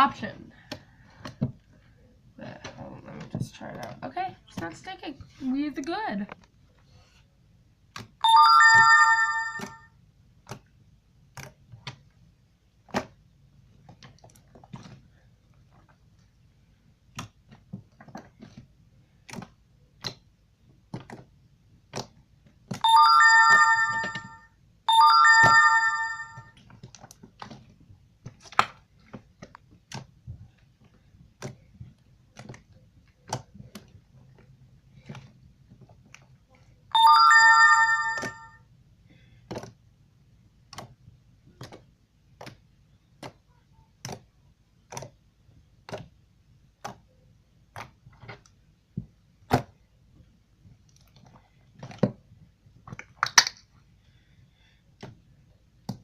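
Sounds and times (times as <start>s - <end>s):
phone ringtone chime: 8.2s - 9.9s, 22.8s - 26.5s, 37.0s - 38.6s.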